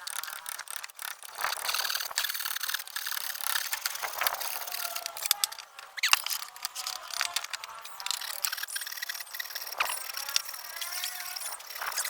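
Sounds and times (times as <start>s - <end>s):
sharp clicks and knocks: 0.0s - 12.0s
short squeak: 7.9s - 12.0s.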